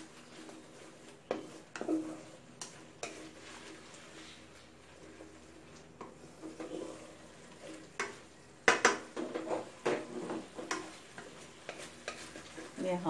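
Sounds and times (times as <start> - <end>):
curry paste sizzling: 0.0 - 13.0
spatula scraping pot: 0.0 - 13.0
spatula knocking on pot: 8.0 - 10.0.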